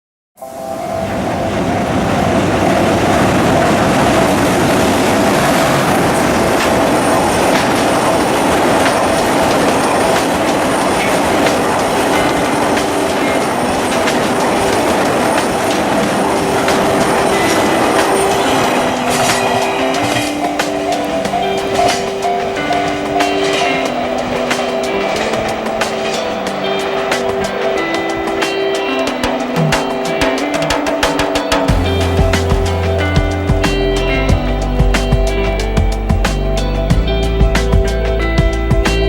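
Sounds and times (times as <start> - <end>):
faint musical tones: 0.4 - 39.0
held high tone: 0.4 - 39.0
train wheels rumbling on rail: 0.6 - 39.0.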